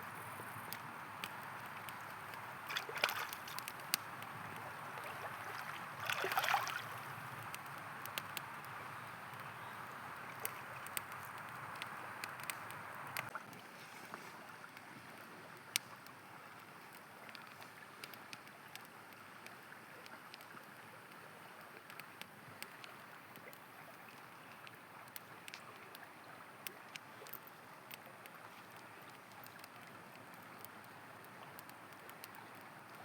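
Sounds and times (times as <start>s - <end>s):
campfire crackling and popping: 0.0s - 13.6s, 14.6s - 33.0s
river water rushing: 2.5s - 3.9s, 4.6s - 7.1s.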